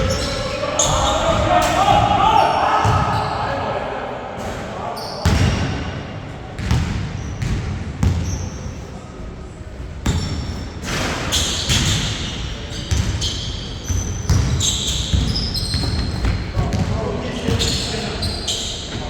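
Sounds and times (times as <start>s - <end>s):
basketball bouncing on hard court: 6.6s - 8.4s, 13.9s - 16.9s.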